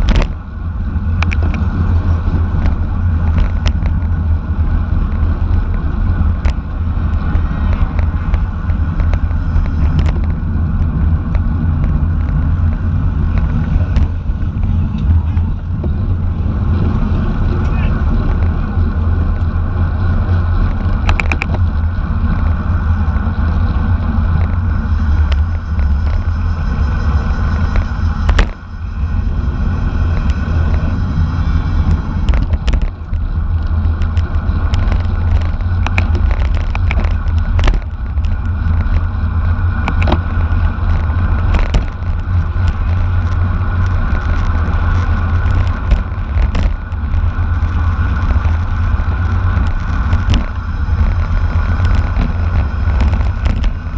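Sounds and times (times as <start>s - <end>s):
tyre and road noise: 0.0s - 53.9s
wind buffeting microphone: 0.0s - 53.9s
sharp clicks and knocks: 1.2s - 1.7s, 5.1s - 16.0s, 20.6s - 22.6s, 27.7s - 28.6s, 31.8s - 39.1s, 39.8s - 53.9s.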